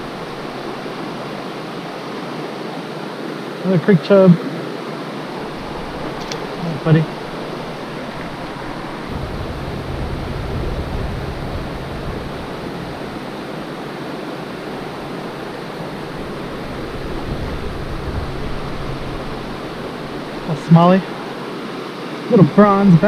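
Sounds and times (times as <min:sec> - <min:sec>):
low rumble: 0:00.0 - 0:01.7, 0:05.4 - 0:21.4
creek water rushing: 0:00.0 - 0:23.0.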